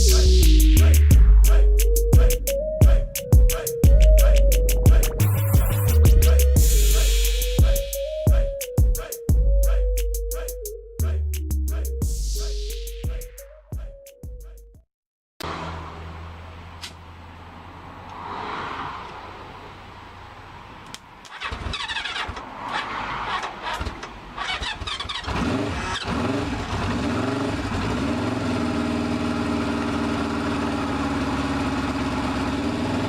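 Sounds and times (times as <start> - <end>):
motorcycle engine cranking and sputtering: 21.2 - 33.0
motorcycle engine idling: 28.4 - 33.0.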